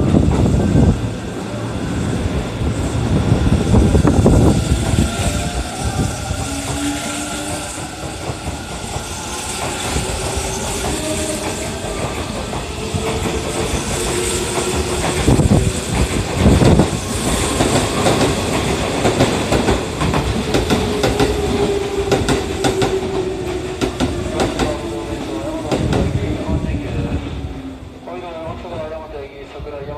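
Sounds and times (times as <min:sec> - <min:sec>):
train running rumble: 0:00.0 - 0:29.7
train wheels clattering over rail joints: 0:06.4 - 0:24.8.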